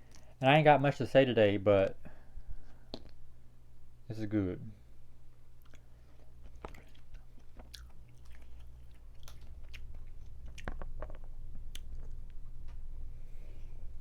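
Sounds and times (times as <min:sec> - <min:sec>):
steady low hum: 0:00.0 - 0:14.0
wet chewing: 0:05.6 - 0:12.9.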